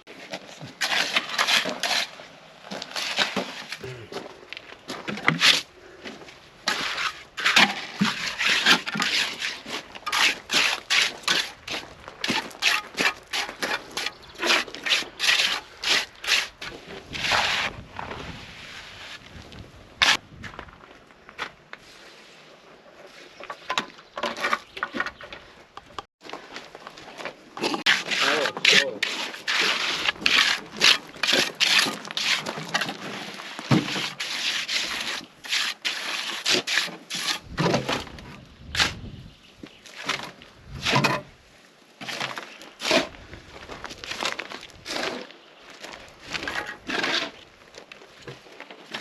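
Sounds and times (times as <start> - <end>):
hand tool scraping concrete: 0.2 - 4.1, 4.9 - 19.2, 27.6 - 38.1, 39.8 - 41.3, 42.0 - 49.0.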